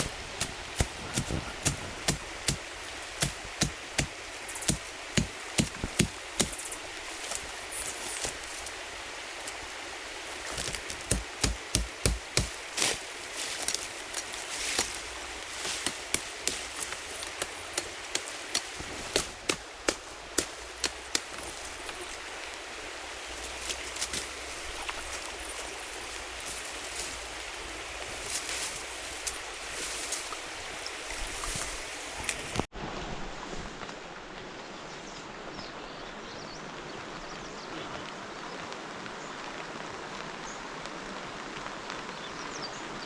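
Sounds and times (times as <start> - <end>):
tool chopping wood: 0.0 - 7.5, 10.5 - 22.0.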